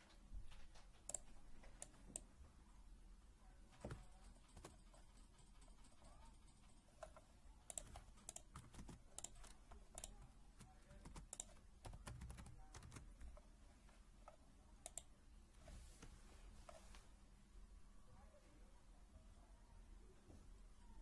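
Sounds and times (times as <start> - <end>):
faint keyboard typing: 0.0 - 2.4, 3.6 - 17.1.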